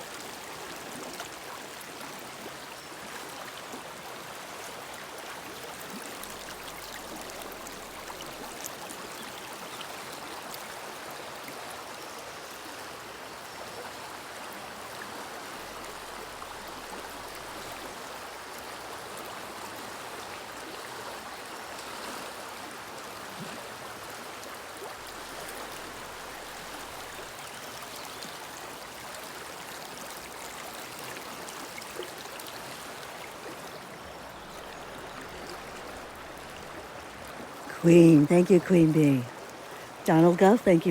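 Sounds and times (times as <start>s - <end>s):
river water rushing: 28.9s - 40.9s.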